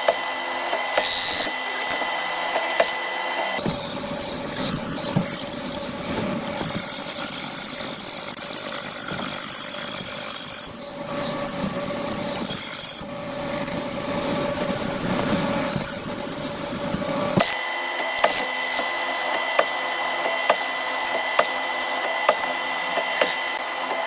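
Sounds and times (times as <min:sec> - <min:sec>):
power tool whining: 0:00.0 - 0:24.0
tool scraping hardwood: 0:17.0 - 0:24.0.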